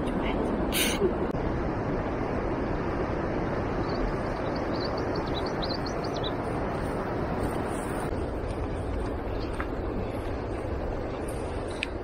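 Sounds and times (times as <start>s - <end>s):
rushing outdoor noise: 0.0s - 12.0s
small bird chirping: 3.8s - 6.4s.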